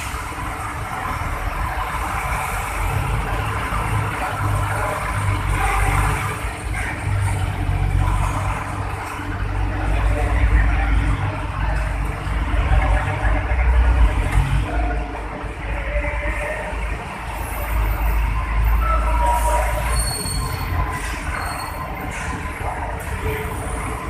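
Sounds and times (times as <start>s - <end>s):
truck diesel engine rumbling: 0.0s - 24.0s.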